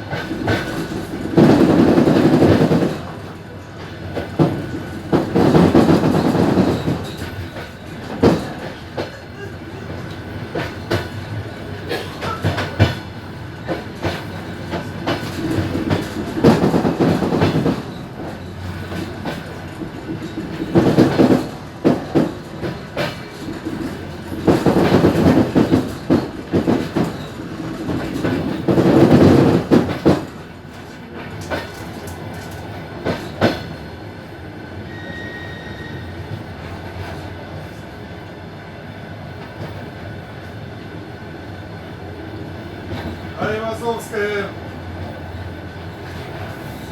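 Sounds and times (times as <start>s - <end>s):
train wheels clattering over joints: 0.0s - 33.9s
train rolling rumble: 0.0s - 46.9s.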